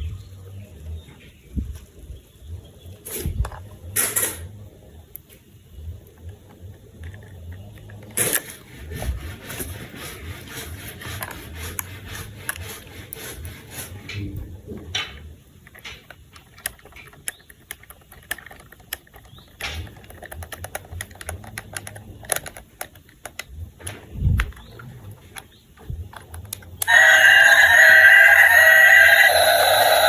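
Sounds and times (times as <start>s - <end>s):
plastic pieces rubbing: 6.2s - 14.3s, 15.6s - 30.0s
plastic toy pieces clicking: 15.6s - 24.7s.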